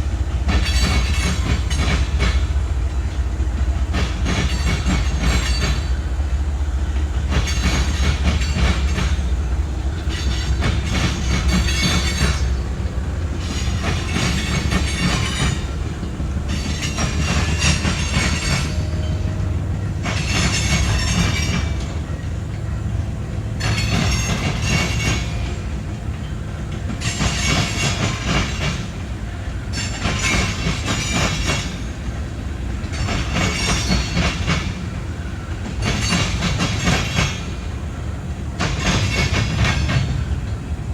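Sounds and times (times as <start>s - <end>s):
freight train wheels clacking: 0.0s - 40.9s
rattling hissing wheel noise: 0.0s - 40.9s
train deep rumble: 0.0s - 40.9s.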